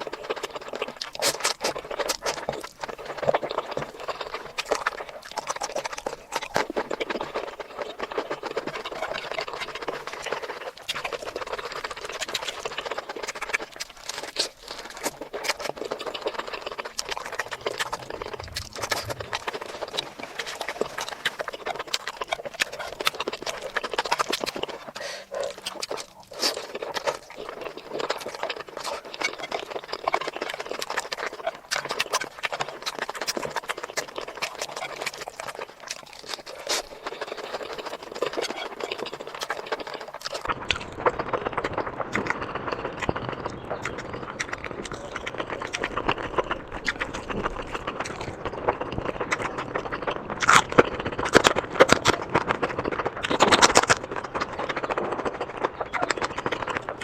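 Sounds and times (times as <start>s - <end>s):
rapid chewing: 0.0s - 57.0s
mouth clicks: 14.4s - 27.0s.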